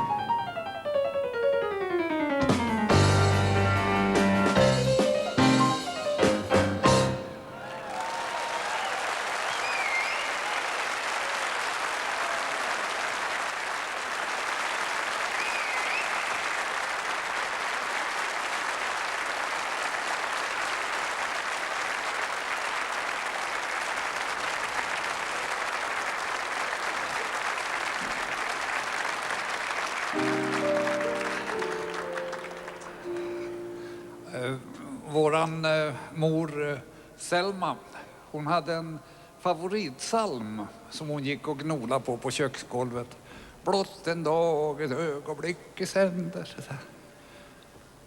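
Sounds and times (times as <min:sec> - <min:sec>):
audience applauding: 0:07.5 - 0:34.0
short whistles: 0:09.5 - 0:10.4, 0:15.4 - 0:16.4
instrument held chord: 0:30.2 - 0:34.7.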